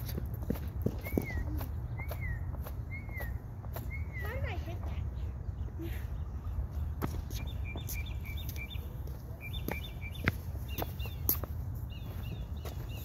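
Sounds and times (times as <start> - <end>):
small bird chirping: 7.3 - 13.0.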